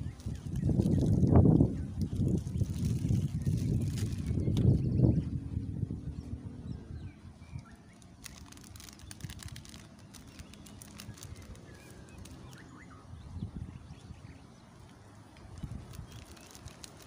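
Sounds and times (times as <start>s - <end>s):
bird chirps: 6.2s - 14.8s
faint light ticks: 14.8s - 15.5s.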